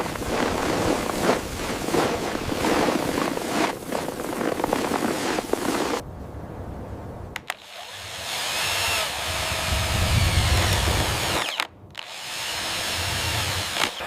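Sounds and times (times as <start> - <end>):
power tool running: 7.5 - 14.0.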